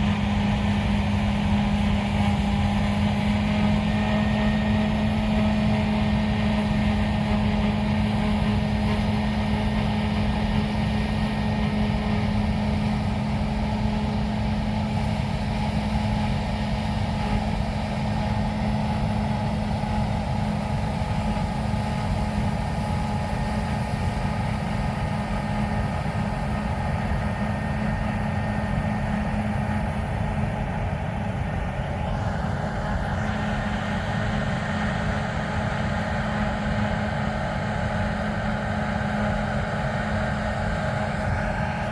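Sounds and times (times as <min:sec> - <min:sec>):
diesel engine drone: 0:00.0 - 0:41.9.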